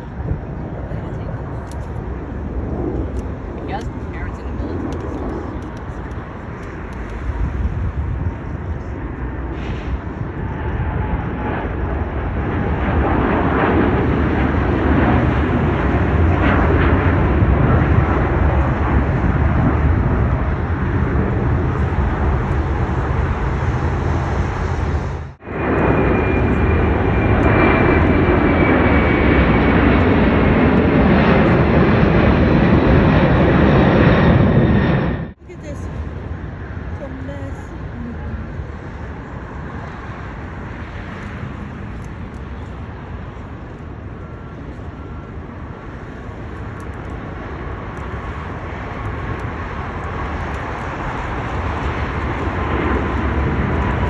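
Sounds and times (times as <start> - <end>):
jet engine high whine: 0.0 - 54.0
jet engines passing: 0.0 - 54.0.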